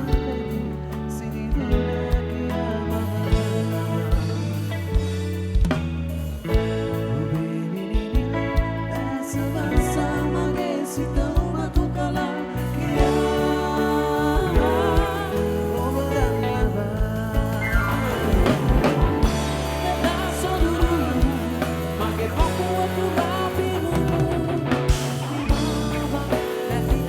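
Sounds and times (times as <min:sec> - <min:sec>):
person singing: 0:00.0 - 0:05.2, 0:06.5 - 0:27.0
bass: 0:00.0 - 0:27.0
live band playing: 0:00.0 - 0:27.0
drum beat: 0:13.0 - 0:27.0.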